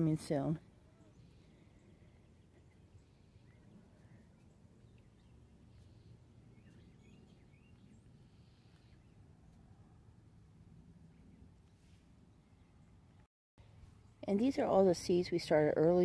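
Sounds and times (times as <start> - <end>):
faint bird chirps: 0.8 - 9.3.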